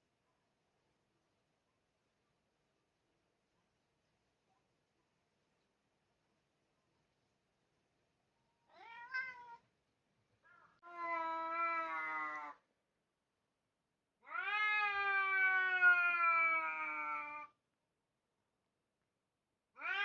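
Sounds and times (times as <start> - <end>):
cat meowing: 8.7 - 9.7, 10.6 - 12.6, 14.2 - 17.6, 19.8 - 20.0.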